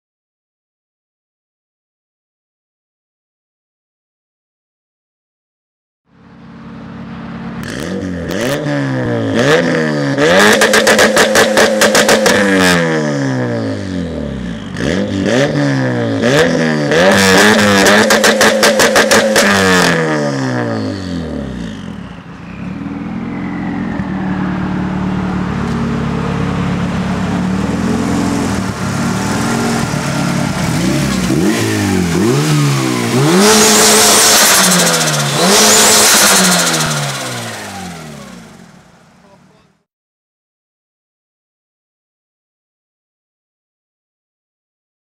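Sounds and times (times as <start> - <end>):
car engine revving: 6.4 - 39.7.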